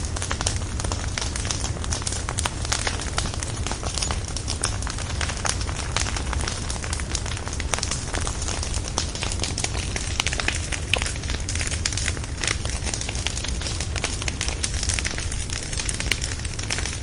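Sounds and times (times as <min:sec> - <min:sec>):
logs crackling and popping: 0:00.0 - 0:17.0
low rumble of flames: 0:00.0 - 0:17.0.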